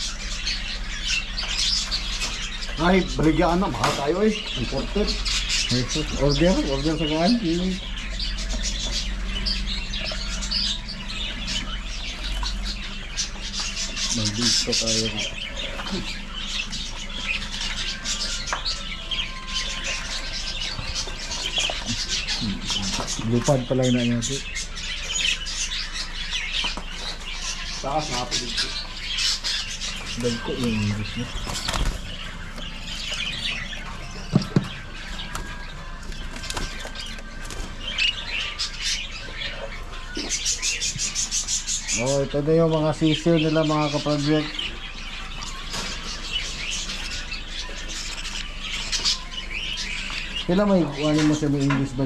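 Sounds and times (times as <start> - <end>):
parrots chattering and squawking: 0.0 - 52.0.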